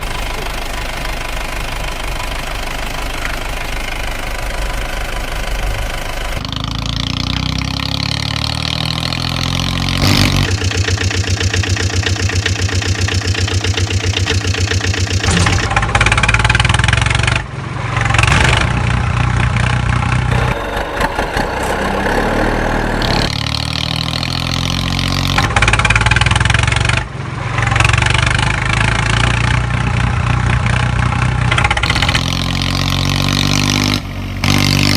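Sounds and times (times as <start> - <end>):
heavy vehicle engines idling and revving: 0.0 - 34.9
fast even engine chugging: 10.1 - 17.4, 20.2 - 23.7.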